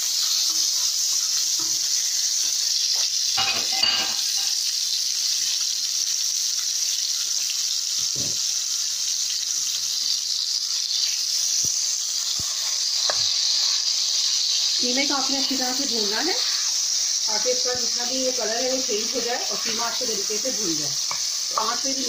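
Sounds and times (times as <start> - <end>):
meat sizzling in hot oil: 0.0 - 22.0
spoon knocking: 21.1 - 21.8.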